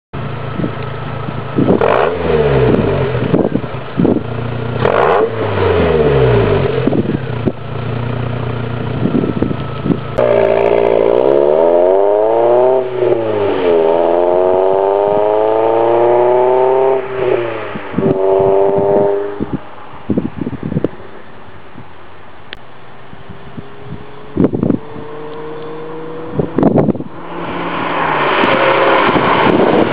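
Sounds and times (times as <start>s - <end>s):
car engine revving: 0.5s - 20.2s, 23.5s - 29.9s.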